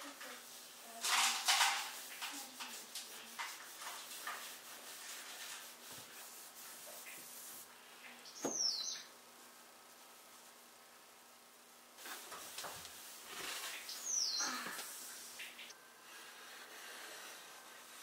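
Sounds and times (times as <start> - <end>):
light rubs and knocks: 0.0 - 7.7, 12.0 - 14.0.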